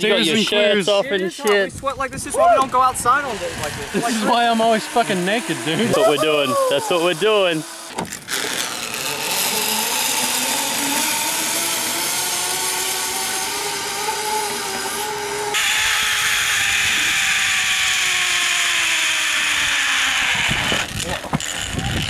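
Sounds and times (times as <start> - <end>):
zip-line pulleys whirring on cable: 2.4 - 22.0.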